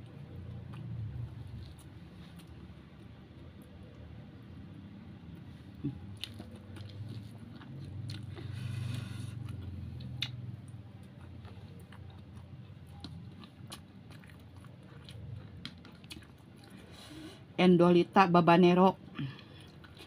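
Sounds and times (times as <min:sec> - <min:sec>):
person chewing food: 0:00.0 - 0:04.1, 0:05.2 - 0:17.3, 0:19.2 - 0:20.0.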